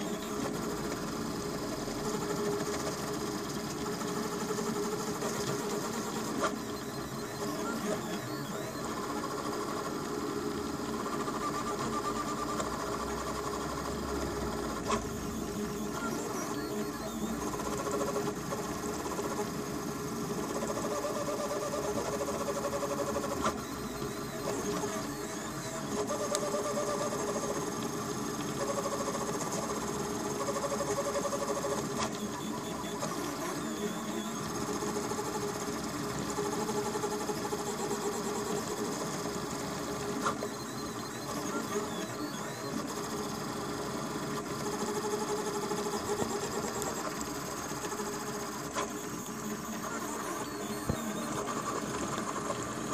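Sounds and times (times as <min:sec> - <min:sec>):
stepper motors whining and buzzing: 0:14.1 - 0:52.9.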